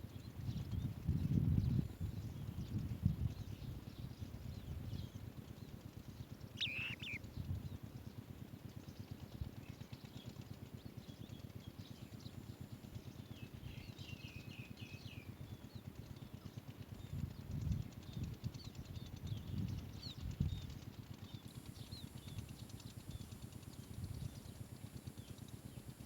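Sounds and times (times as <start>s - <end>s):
bird chirps: 6.6s - 7.2s.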